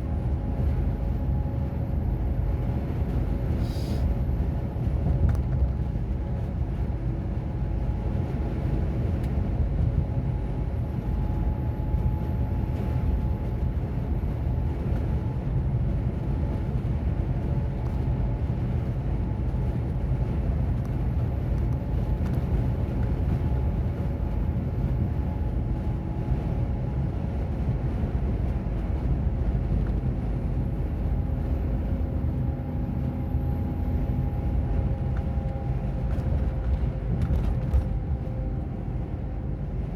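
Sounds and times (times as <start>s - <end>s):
lorry diesel engine rumble: 0.0s - 39.9s
road noise: 26.2s - 39.9s.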